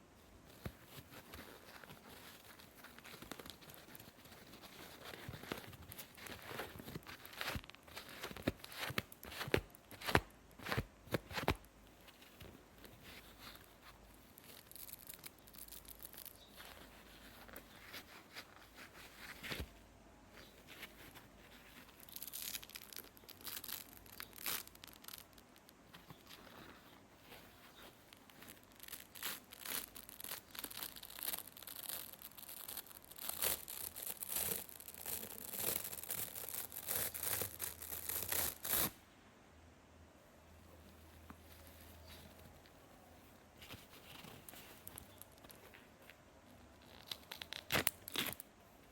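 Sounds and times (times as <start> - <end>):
sponge crackling and tearing: 20.5 - 39.0, 46.8 - 48.4.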